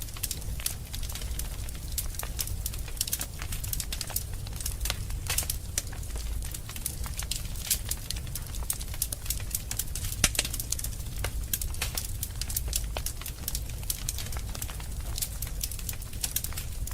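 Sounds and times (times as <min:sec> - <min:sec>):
wood fire crackling: 0:00.0 - 0:16.9.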